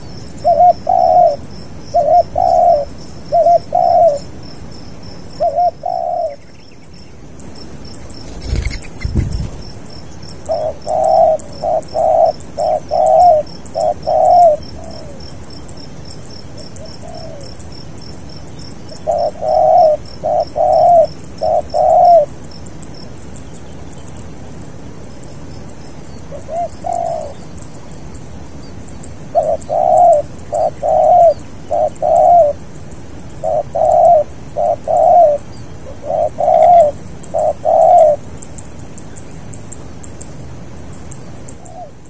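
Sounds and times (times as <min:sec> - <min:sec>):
dove cooing: 0:00.4 - 0:04.3, 0:05.4 - 0:06.4, 0:08.0 - 0:09.7, 0:10.5 - 0:15.3, 0:16.6 - 0:17.6, 0:18.9 - 0:22.3, 0:26.3 - 0:27.4, 0:29.3 - 0:32.6, 0:33.4 - 0:38.2, 0:41.6 - 0:42.0
fast high ticking chirp: 0:06.4 - 0:24.2.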